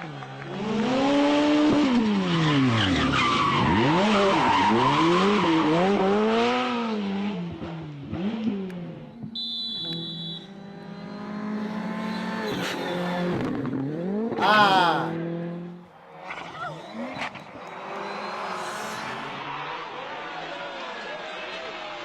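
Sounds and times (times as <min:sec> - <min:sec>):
rally car engine revving: 0:00.1 - 0:09.0, 0:15.2 - 0:20.8.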